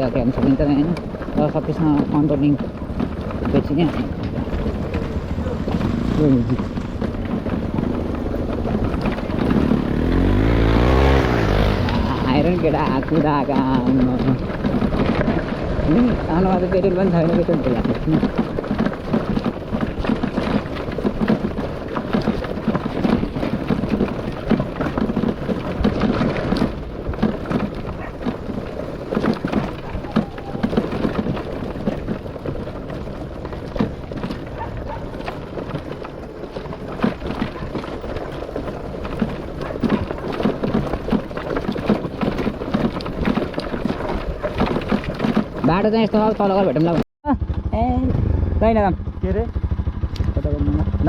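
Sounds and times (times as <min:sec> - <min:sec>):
jolts and rattles: 0:00.0 - 0:16.5, 0:17.1 - 0:47.0
wind on microphone: 0:00.0 - 0:20.0
motorcycle engine rumble: 0:00.0 - 0:51.0.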